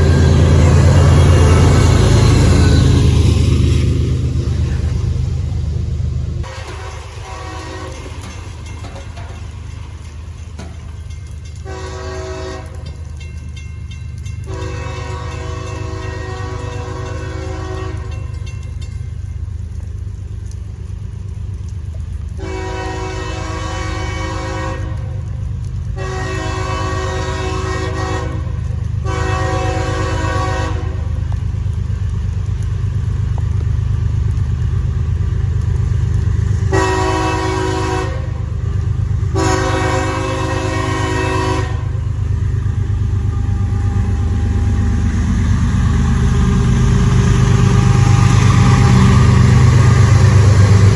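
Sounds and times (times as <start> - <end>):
locomotive engine rumble: 0.0 - 50.9
locomotive air horn blasts: 6.4 - 8.4, 11.6 - 13.1, 14.4 - 18.2, 22.4 - 25.3, 26.0 - 31.1, 36.7 - 38.5, 39.3 - 42.0.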